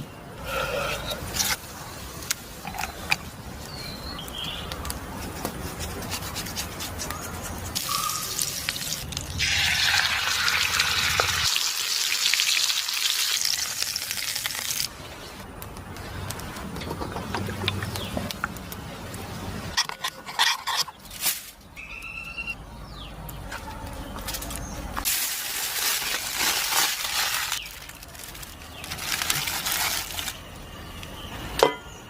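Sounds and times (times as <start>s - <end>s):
chicken sizzling in hot oil: 7.8s - 14.9s.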